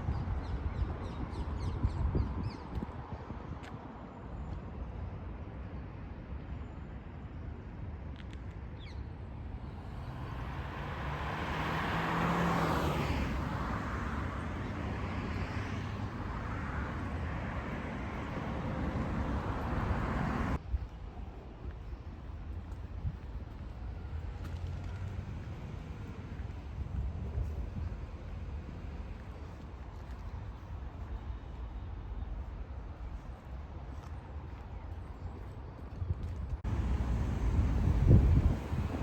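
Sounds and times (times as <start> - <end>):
low traffic rumble: 9.0 - 39.0
vehicle passing close by: 9.6 - 20.6, 36.6 - 39.0.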